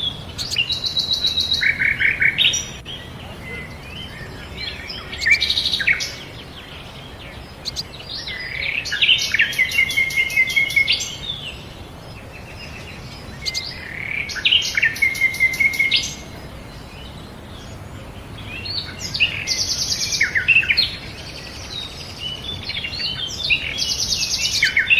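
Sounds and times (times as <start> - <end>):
bird twittering with trills: 0.0 - 11.5, 12.8 - 16.2.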